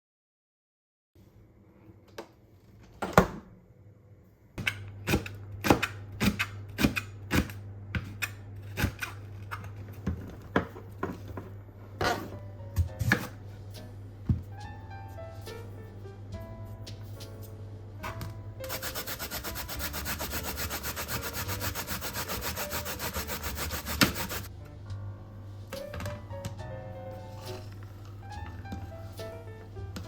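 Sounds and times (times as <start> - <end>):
low steady hum: 23.2 - 30.0.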